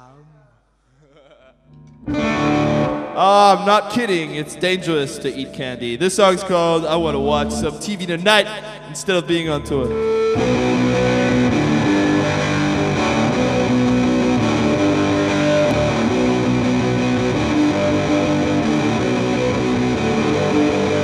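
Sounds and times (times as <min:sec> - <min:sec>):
distorted electric guitar: 0:01.7 - 0:05.6, 0:08.6 - 0:21.0
live rock band playing: 0:02.1 - 0:03.2, 0:09.9 - 0:21.0.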